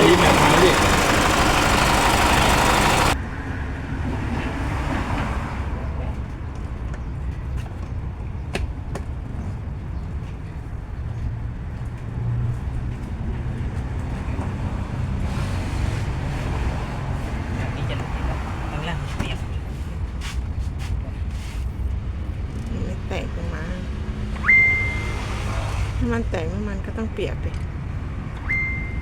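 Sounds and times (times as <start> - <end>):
diesel engine idling: 0.0 - 3.2.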